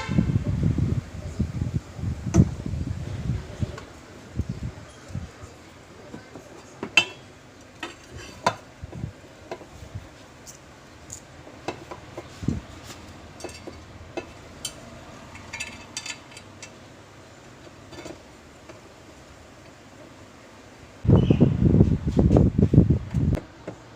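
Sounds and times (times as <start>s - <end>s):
metal tools clinking: 13.3s - 16.8s.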